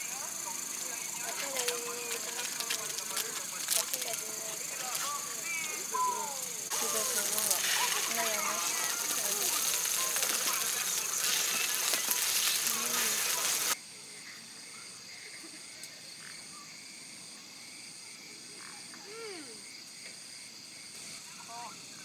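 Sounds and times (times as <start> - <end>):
loud even hiss: 0.0 - 13.8
faint voices: 0.0 - 16.2
insects chirping: 0.0 - 22.0.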